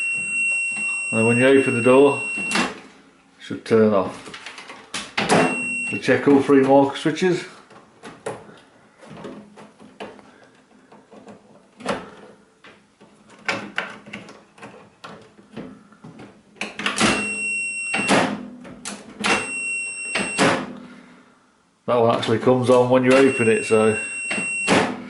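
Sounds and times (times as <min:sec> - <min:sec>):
multimeter continuity beeps: 0:00.0 - 0:02.7, 0:05.4 - 0:06.2, 0:17.1 - 0:18.2, 0:19.3 - 0:20.5, 0:23.1 - 0:24.8.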